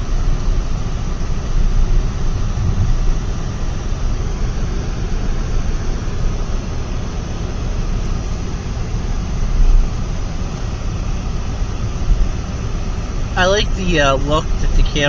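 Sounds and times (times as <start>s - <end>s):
car cabin road rumble: 0.0s - 15.0s
low bump: 2.0s - 3.6s.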